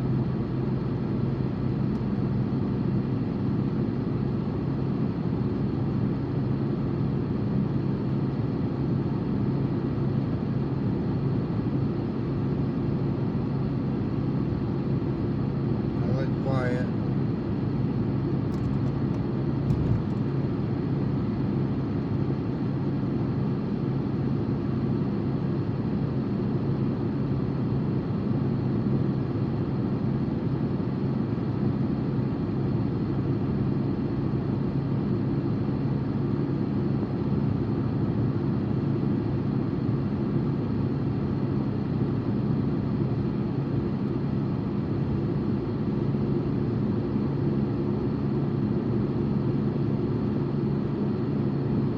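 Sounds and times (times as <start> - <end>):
car driving interior hum: 18.4 - 20.4.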